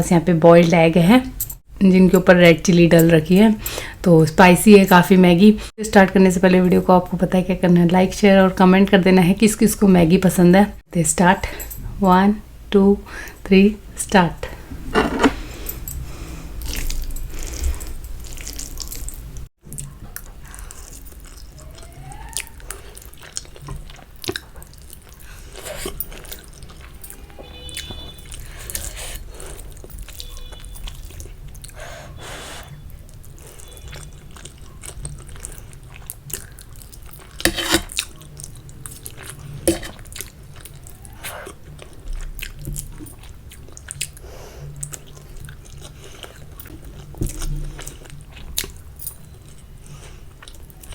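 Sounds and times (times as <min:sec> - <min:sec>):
person chewing and biting food: 0:16.6 - 0:21.6.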